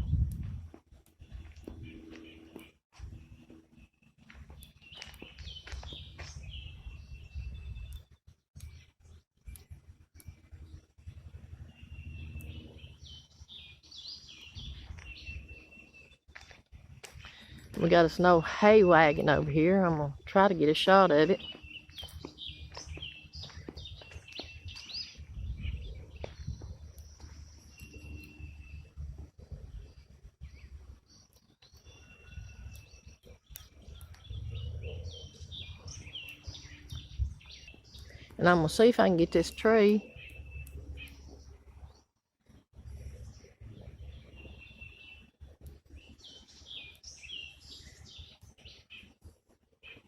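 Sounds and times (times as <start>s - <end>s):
low rumble: 0.0s - 3.9s
birds chirping: 1.1s - 9.2s, 10.2s - 42.1s, 42.8s - 50.0s.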